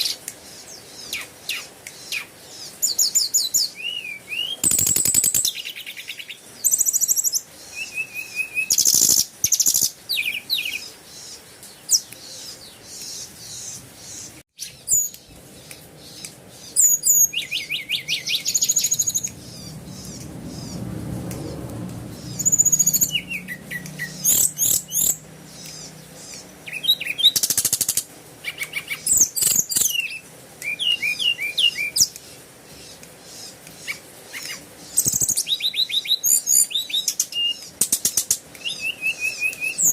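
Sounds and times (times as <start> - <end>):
birds chirping and trilling: 0.0 - 39.9
faint low rumble: 17.9 - 26.5.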